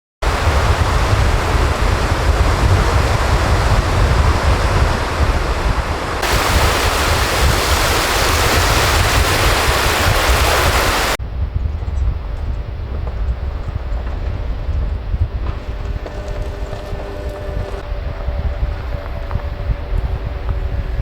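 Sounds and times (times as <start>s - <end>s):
surf washing: 0.2s - 11.2s
wind buffeting microphone: 0.2s - 21.0s.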